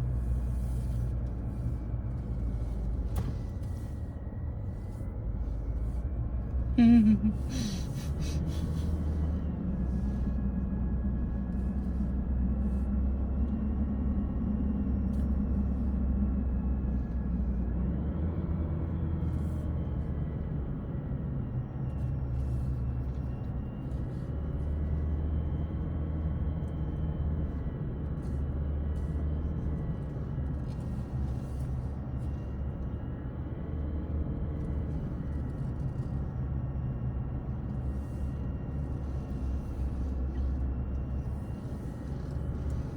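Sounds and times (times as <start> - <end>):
car engine and tyre rumble: 0.0 - 42.9.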